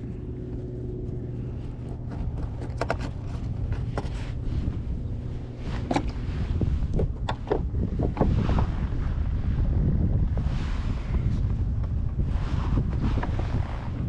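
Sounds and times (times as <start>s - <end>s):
wind rumbling on microphone: 0.0s - 14.0s
sharp clicks and knocks: 1.9s - 4.2s, 6.9s - 8.3s.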